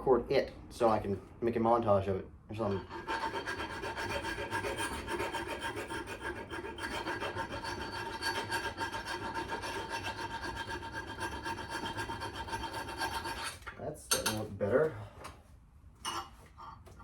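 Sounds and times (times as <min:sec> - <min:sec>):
scrubbing rusty metal with abrasive: 0:02.6 - 0:13.7.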